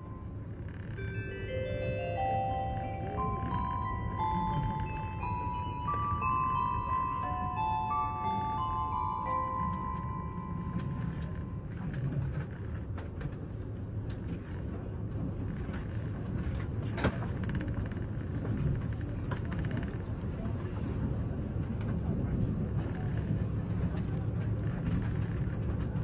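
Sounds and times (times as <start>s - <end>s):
train interior rumble: 0.0s - 26.0s
onboard chime: 1.0s - 11.6s.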